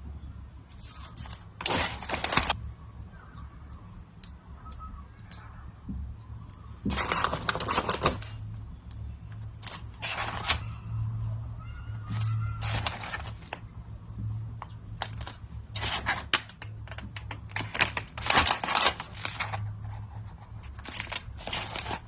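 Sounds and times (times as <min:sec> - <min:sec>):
low steady hum: 0:00.0 - 0:22.0
plastic packaging rustling: 0:00.8 - 0:02.6, 0:06.8 - 0:08.5, 0:09.4 - 0:10.8, 0:12.0 - 0:13.7, 0:14.9 - 0:19.8, 0:20.6 - 0:22.0.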